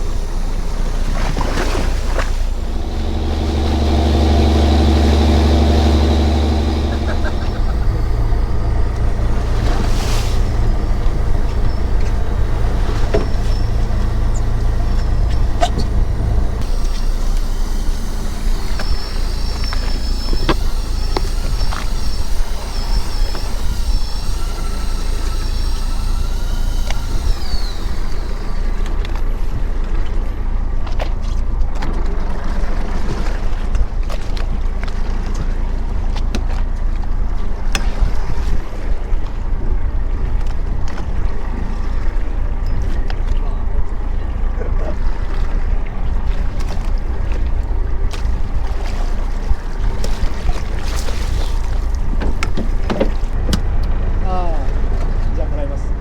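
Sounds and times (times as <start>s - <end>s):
thin high whine: 0.0s - 30.1s
boat engine rumbling: 0.0s - 56.0s.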